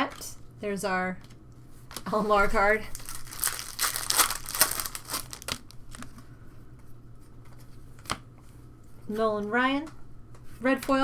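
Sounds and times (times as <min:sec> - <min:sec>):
foil wrapper crinkling: 0:02.8 - 0:06.2.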